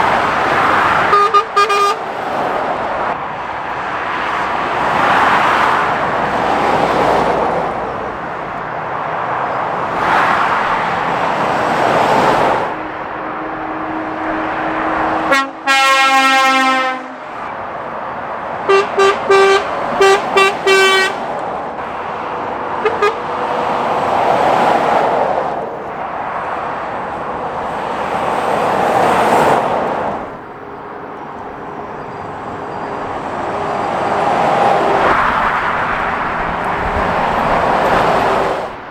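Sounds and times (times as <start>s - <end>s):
traffic passing at speed: 0.0s - 38.9s
vehicle horn: 1.0s - 2.3s, 12.7s - 17.6s, 18.6s - 21.2s, 22.6s - 23.6s.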